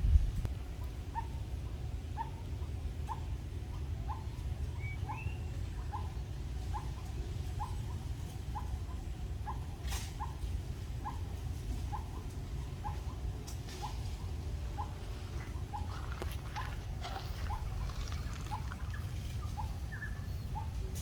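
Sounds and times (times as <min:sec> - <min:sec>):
steady low rumble: 0:00.0 - 0:03.0, 0:10.7 - 0:21.0.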